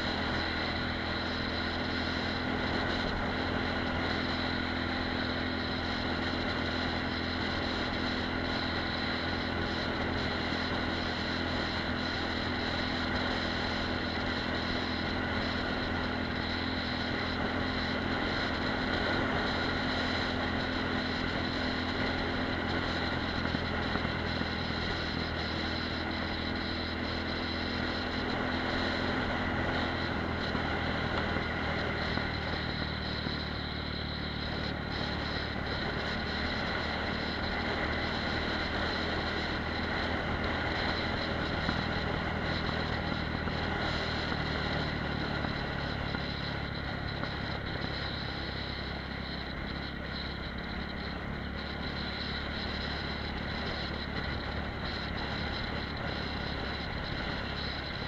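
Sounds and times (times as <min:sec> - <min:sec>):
motorcycle engine running steadily: 0:00.0 - 0:58.0
wind and road noise: 0:00.0 - 0:58.0.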